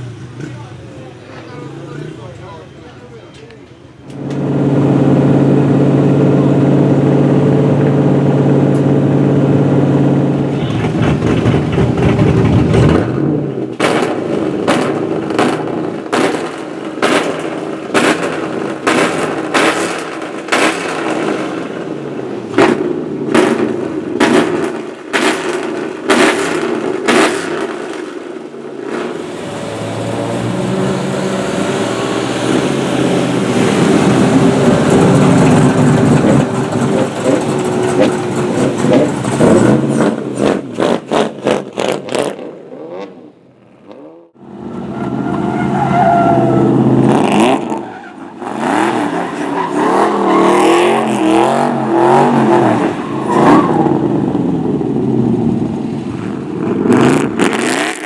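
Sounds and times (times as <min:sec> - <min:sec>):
car engine revving hard: 0:04.2 - 0:43.3, 0:43.9 - 0:58.0
engine sharp cracks: 0:10.5 - 0:42.6.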